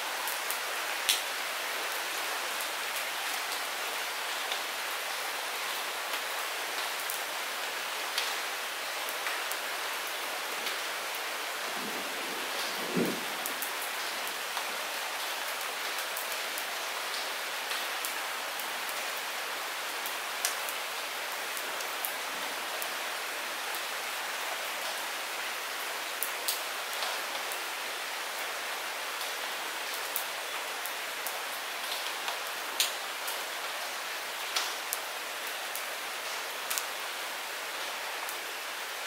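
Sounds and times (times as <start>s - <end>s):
light rain falling: 0.0s - 39.0s.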